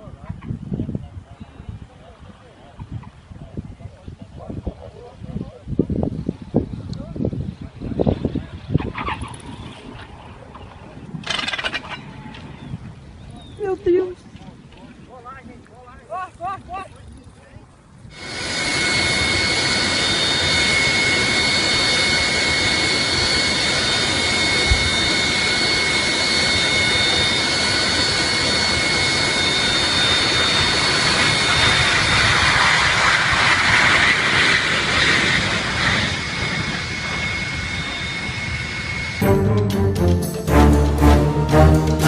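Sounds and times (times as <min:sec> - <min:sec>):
jet engine roaring: 0:18.1 - 0:42.0.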